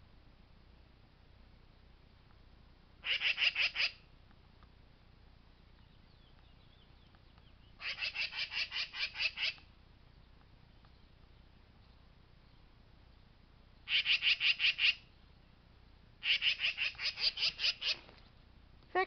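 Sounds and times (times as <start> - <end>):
magpie chattering: 3.0 - 4.0, 7.8 - 9.6, 13.9 - 15.0, 16.2 - 18.0.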